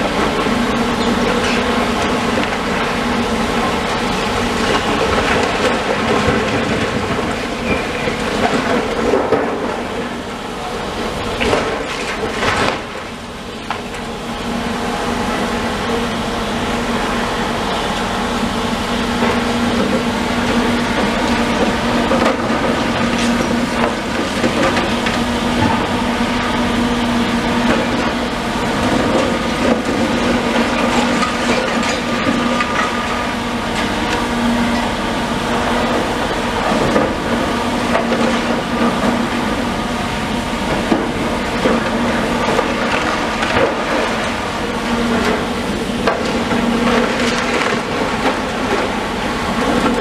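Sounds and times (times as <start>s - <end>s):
demolition machinery engine hum: 0.0s - 50.0s
debris crunching and clattering: 40.7s - 50.0s.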